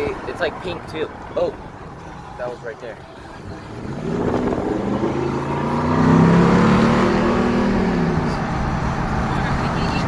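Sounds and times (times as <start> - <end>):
road noise: 0.0 - 10.0
car engine accelerating: 3.1 - 10.0.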